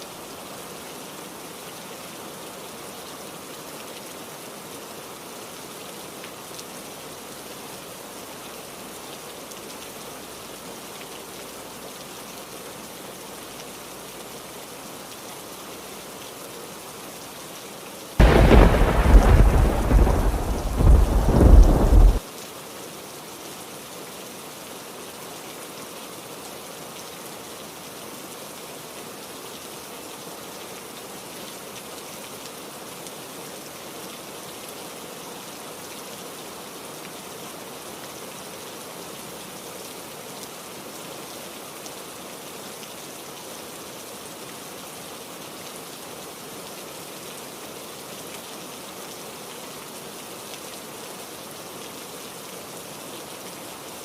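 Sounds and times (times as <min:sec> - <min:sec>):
rain falling: 0:00.0 - 0:54.0
thunder rumble: 0:18.2 - 0:22.2.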